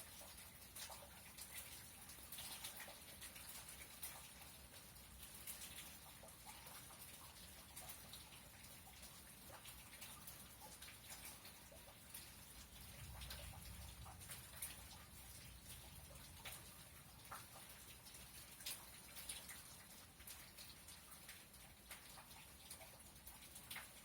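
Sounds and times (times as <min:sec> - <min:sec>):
raindrops dripping: 0:00.0 - 0:24.0
faint low thunder rumble: 0:12.8 - 0:17.3.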